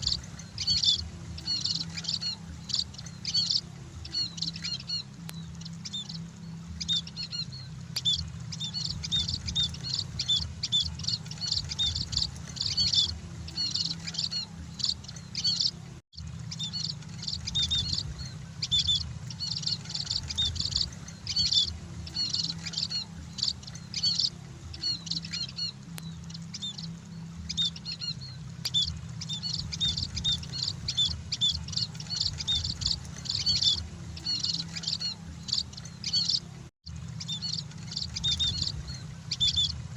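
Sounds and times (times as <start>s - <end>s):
flock of birds chirping: 0.0s - 39.9s
steady low hum: 0.0s - 39.9s.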